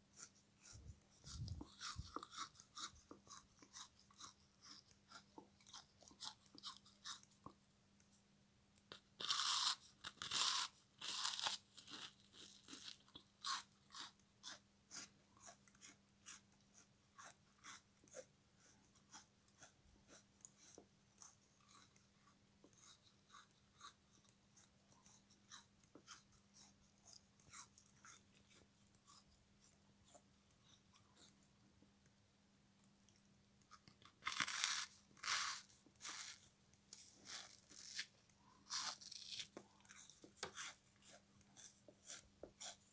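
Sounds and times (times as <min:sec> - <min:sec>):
crunchy chewing: 0:00.2 - 0:07.6, 0:09.2 - 0:16.4.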